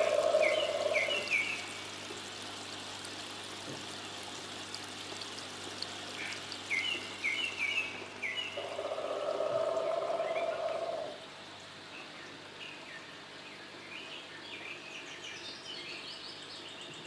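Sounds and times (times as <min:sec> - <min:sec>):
birds chirping: 0:00.0 - 0:01.9, 0:06.2 - 0:11.2
fountain water pouring and trickling: 0:00.0 - 0:14.4.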